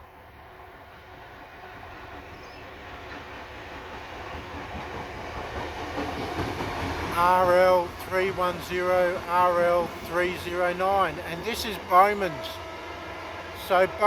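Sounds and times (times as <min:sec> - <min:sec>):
diesel locomotive engine rumble: 0:00.0 - 0:14.0
train wheels on rails: 0:00.1 - 0:14.0.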